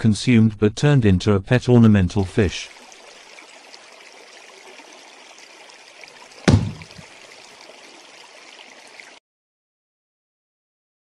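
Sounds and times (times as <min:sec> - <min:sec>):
water trickling: 0:02.2 - 0:09.2
loud thump: 0:06.5 - 0:07.0.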